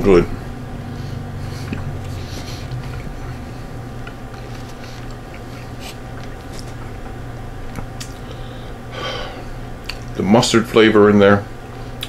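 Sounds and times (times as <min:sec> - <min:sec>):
steady low hum: 0:00.0 - 0:12.0
person chewing: 0:01.4 - 0:08.4, 0:09.8 - 0:10.1
wet mouth clicks: 0:07.7 - 0:08.2.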